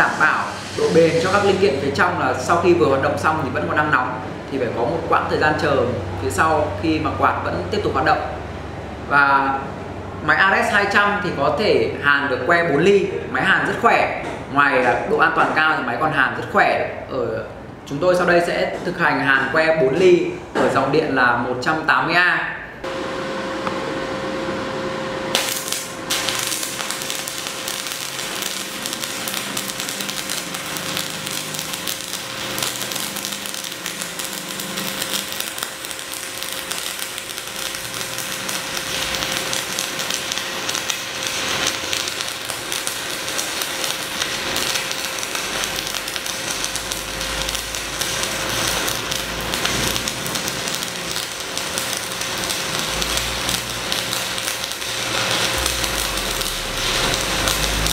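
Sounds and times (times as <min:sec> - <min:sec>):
steady tone: 0:00.0 - 0:02.6, 0:22.8 - 0:57.9
welding arc crackling and sizzling: 0:00.0 - 0:17.0, 0:22.8 - 0:57.9.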